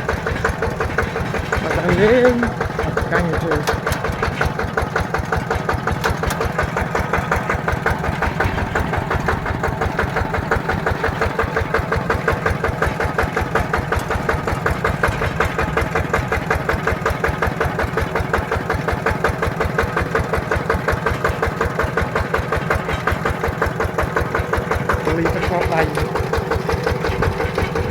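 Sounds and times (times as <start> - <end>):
tractor diesel engine running: 0.0 - 27.9.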